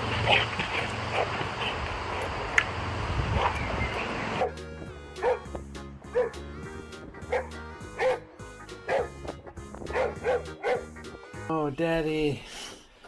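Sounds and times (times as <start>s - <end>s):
background music sustained notes: 3.8s - 11.9s
dog yipping: 5.2s - 5.5s, 6.1s - 6.4s, 7.3s - 8.2s, 8.9s - 9.1s, 9.9s - 10.8s.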